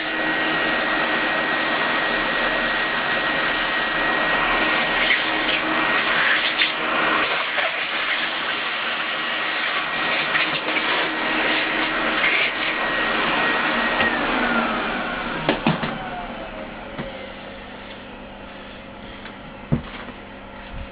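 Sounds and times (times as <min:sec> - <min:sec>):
machine motor whining: 0:09.3 - 0:19.3.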